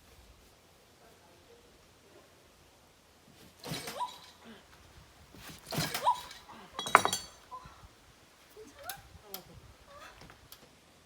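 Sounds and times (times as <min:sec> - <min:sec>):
hard objects knocking: 0:06.7 - 0:07.5
short ringing clink: 0:06.8 - 0:07.7.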